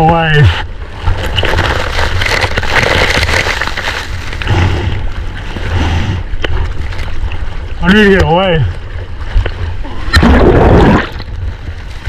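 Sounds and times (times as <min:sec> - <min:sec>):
whitewater rushing and sloshing: 0:00.0 - 0:12.0.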